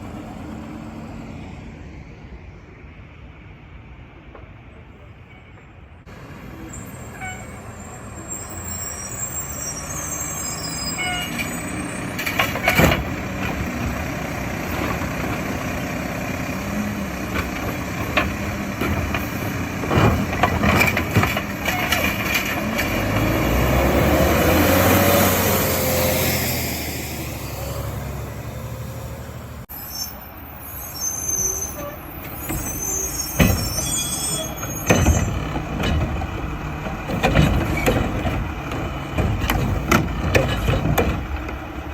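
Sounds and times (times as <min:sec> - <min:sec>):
diesel engine running: 0:11.0 - 0:29.7, 0:34.5 - 0:41.9
cart banging while dumped: 0:12.2 - 0:13.9, 0:17.2 - 0:23.4, 0:34.5 - 0:41.6.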